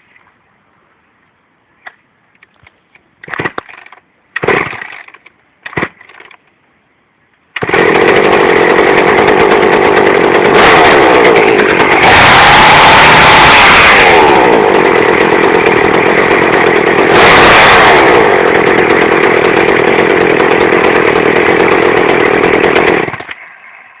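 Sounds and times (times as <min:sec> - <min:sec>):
small two-stroke engine revving: 0:07.6 - 0:24.0.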